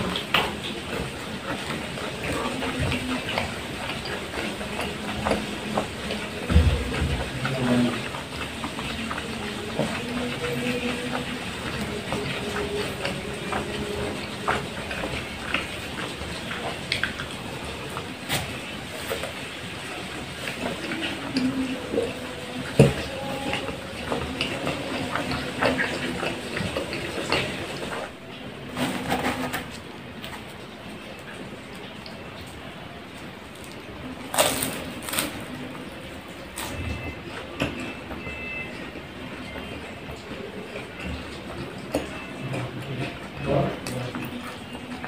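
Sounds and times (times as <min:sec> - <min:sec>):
person chewing food: 0:00.0 - 0:28.2, 0:33.4 - 0:38.9.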